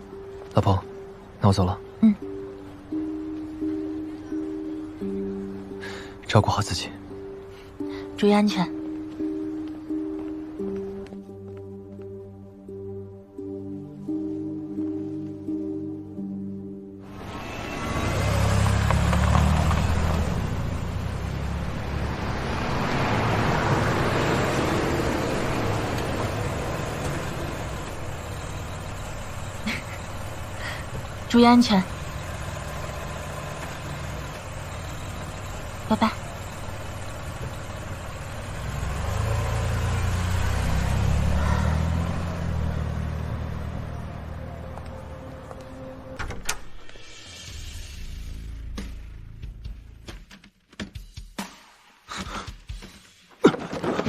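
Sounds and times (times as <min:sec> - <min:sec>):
car engine rumble: 0:17.0 - 0:50.2
tyre and road noise: 0:17.0 - 0:50.5, 0:52.1 - 0:54.0.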